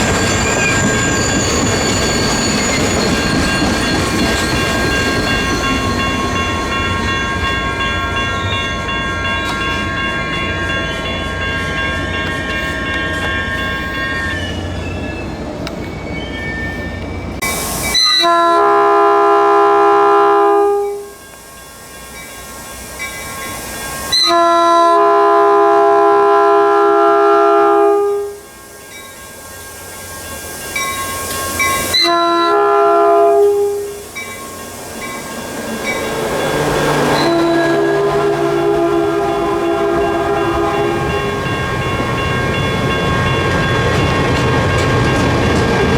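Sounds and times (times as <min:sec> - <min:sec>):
approaching train rumble: 0:00.0 - 0:45.9
train air horn blasts: 0:18.0 - 0:21.2, 0:24.1 - 0:28.4, 0:31.9 - 0:34.2, 0:34.8 - 0:41.7.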